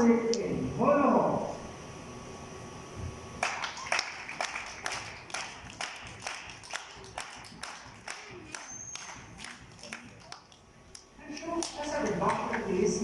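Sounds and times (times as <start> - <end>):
spectators clapping in rhythm: 3.4 - 12.7.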